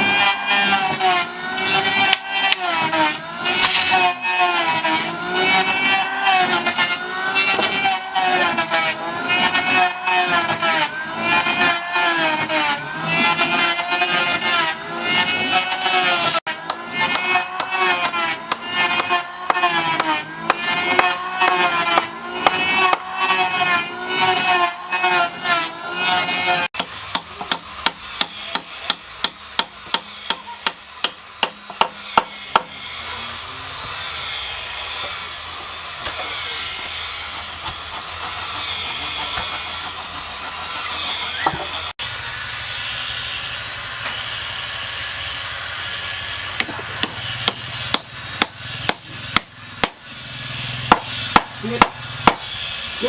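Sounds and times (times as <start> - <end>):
hammer blows on wood: 26.8 - 32.8, 46.6 - 50.0, 50.8 - 52.5.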